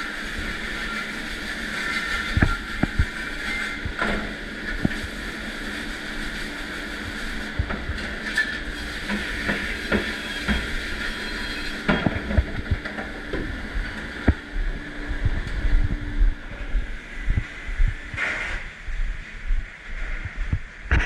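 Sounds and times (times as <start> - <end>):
dishwashing machine hissing: 0.0 - 15.3
dishes and racks clattering: 7.7 - 13.5.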